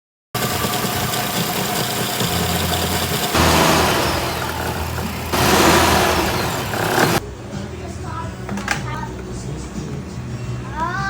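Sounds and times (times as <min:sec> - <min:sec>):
car engine running: 0:01.6 - 0:07.2.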